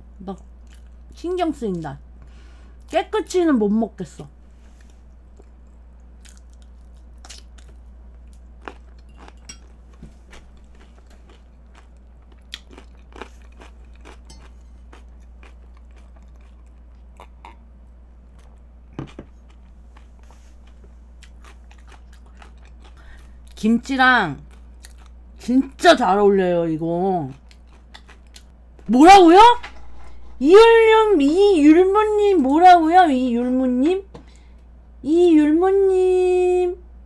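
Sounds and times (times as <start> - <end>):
steady low hum: 0.0 - 37.0
person chewing crunchy food: 4.8 - 17.6, 18.3 - 23.6, 24.4 - 25.4, 27.3 - 28.5.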